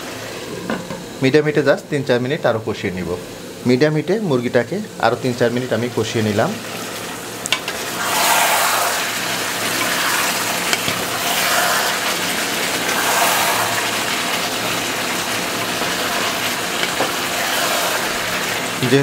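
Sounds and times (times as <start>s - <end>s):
curry sizzling in a pot: 2.7s - 19.0s
wooden spatula stirring: 12.7s - 18.7s.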